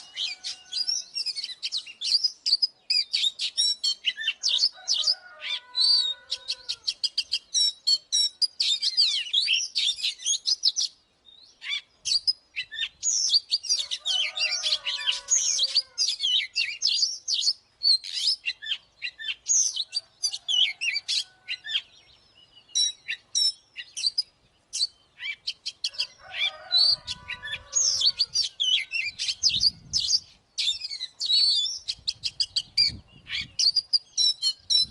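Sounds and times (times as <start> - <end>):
bird singing whistles and chatter: 0.0 - 4.8, 22.6 - 26.1, 26.8 - 34.9.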